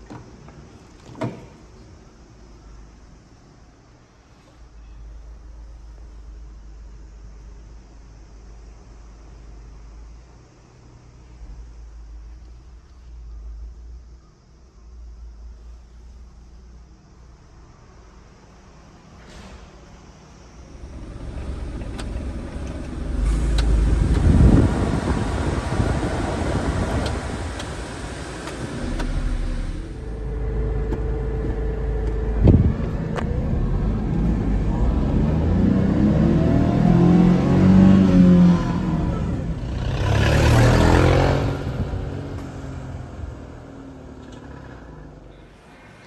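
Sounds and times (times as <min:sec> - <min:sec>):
rush of noise: 0:20.6 - 0:35.3
small engine revving: 0:20.6 - 0:45.7.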